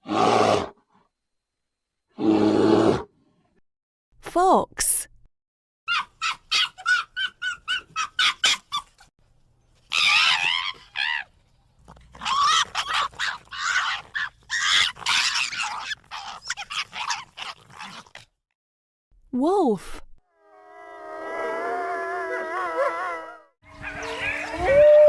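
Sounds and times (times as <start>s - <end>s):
fox screaming and whining: 5.9s - 8.8s, 9.9s - 11.3s, 12.1s - 18.2s, 20.3s - 25.0s
fox yapping: 5.9s - 8.8s, 9.9s - 11.3s, 11.9s - 18.2s, 20.4s - 24.8s.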